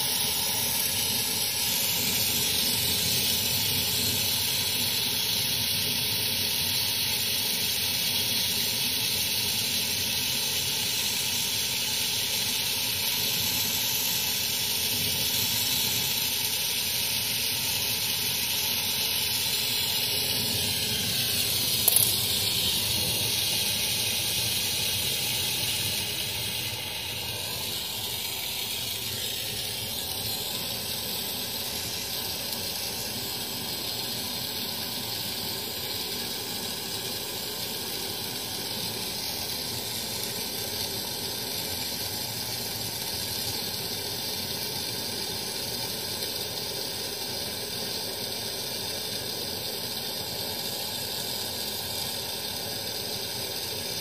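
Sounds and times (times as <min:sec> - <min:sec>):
gas hissing: 0:00.0 - 0:54.0.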